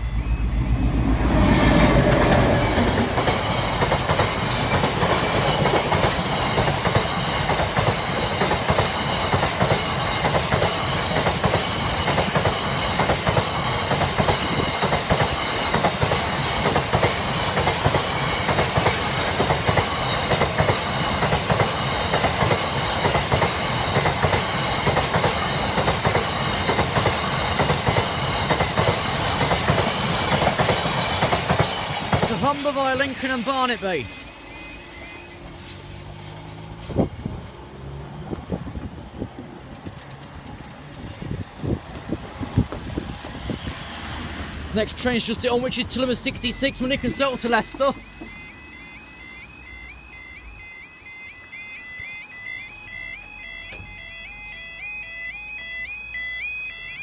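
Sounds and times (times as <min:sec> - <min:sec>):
freight train rumbling: 0:00.0 - 0:48.8
locomotive engine passing: 0:00.0 - 0:57.0
wheels clacking over rail joints: 0:01.9 - 0:32.8, 0:38.5 - 0:43.4.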